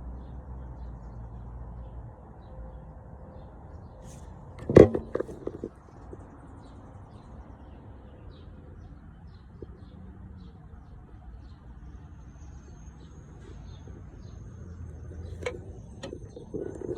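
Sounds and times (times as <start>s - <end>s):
clatter of sharp knocks: 4.6s - 5.7s.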